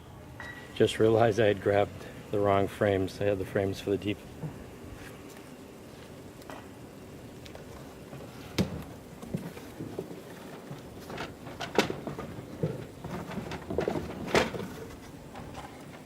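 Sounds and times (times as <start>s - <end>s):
wooden frames clunking: 7.6s - 16.0s
light rattling and clatter: 8.1s - 16.0s.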